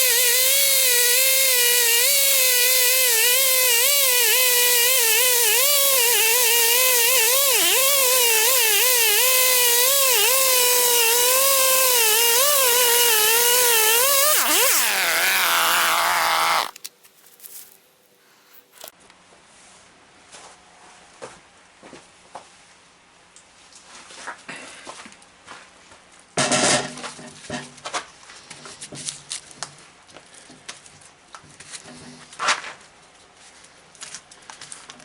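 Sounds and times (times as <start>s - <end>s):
power tool cutting wood: 0.0s - 16.8s.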